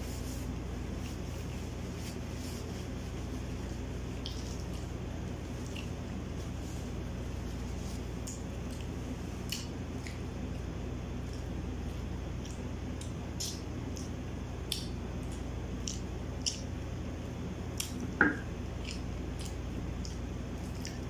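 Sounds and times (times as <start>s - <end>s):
steady low hum: 0.0s - 21.0s
chewing with wet mouth clicks: 4.1s - 6.2s, 8.2s - 16.9s, 17.7s - 21.0s.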